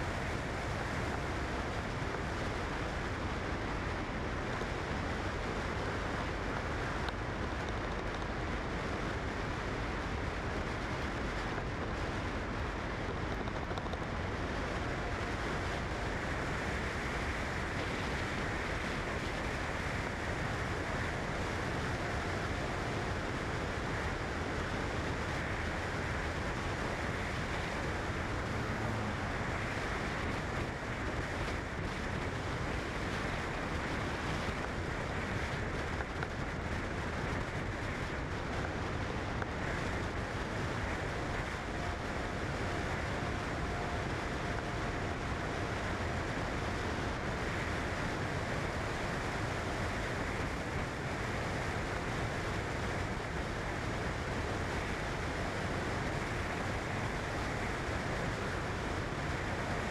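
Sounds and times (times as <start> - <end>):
steady rushing noise: 0.0 - 59.9.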